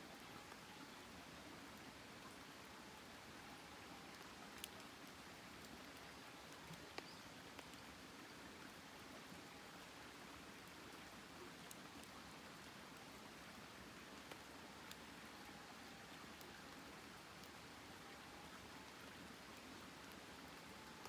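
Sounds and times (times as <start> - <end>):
campfire crackling: 3.2 - 8.1, 10.2 - 21.0.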